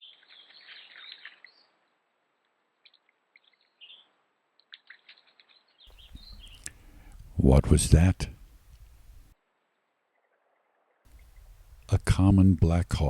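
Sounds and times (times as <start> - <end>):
faint bird chirps: 2.8 - 7.3.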